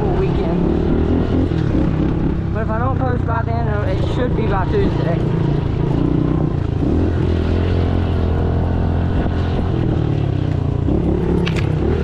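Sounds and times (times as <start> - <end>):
small motorbike engine running: 0.0 - 12.0
wind rushing over microphone: 6.7 - 12.0.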